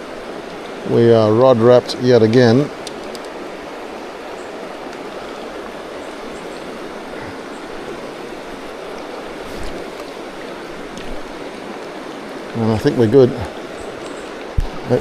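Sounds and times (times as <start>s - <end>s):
fast-flowing river rushing: 0.0s - 15.0s
faint low knock: 14.6s - 14.8s.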